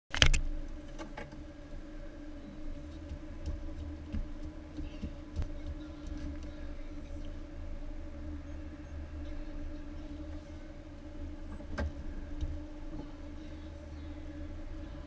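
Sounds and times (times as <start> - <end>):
car engine idling: 0.5 - 15.0
faint clicks and knocks: 2.8 - 6.6.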